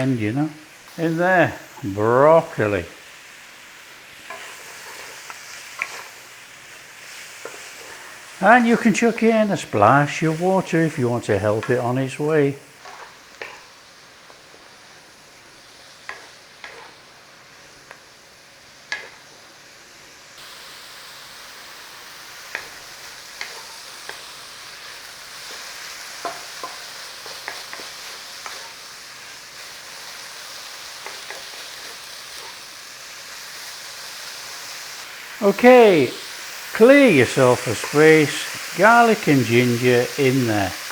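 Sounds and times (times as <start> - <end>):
vegetables sizzling in a pan: 0.0 - 40.9.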